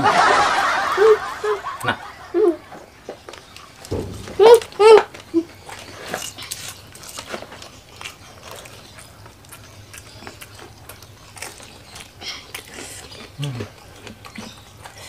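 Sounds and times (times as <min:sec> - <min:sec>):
crispy food crunching: 0:03.3 - 0:15.0.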